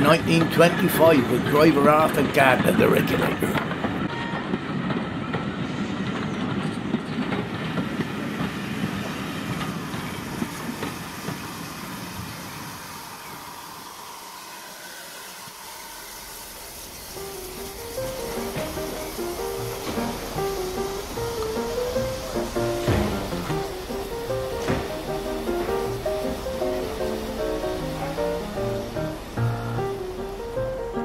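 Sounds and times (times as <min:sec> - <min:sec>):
train wheels clattering over joints: 0:00.0 - 0:12.8, 0:16.4 - 0:31.0
plucked-string music: 0:18.0 - 0:31.0.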